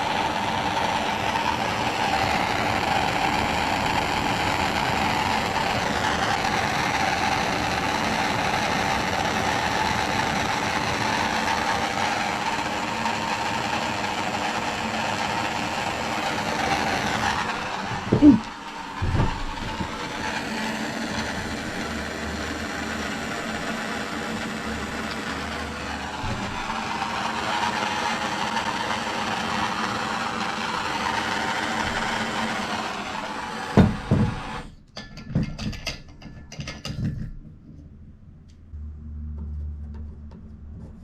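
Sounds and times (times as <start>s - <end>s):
torch flame hissing: 0.0s - 34.8s.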